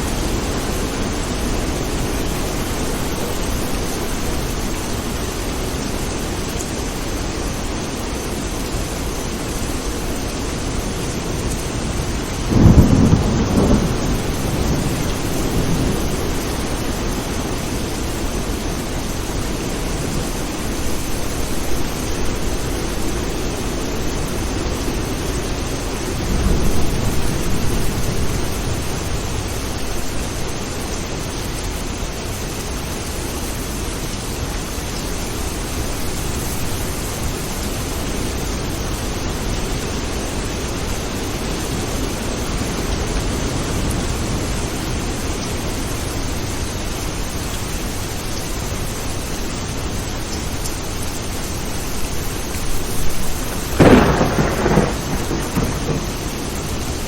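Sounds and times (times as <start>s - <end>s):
rain hiss: 0.0s - 57.0s
thunder rumble: 11.0s - 25.1s, 25.7s - 30.5s, 51.7s - 57.0s.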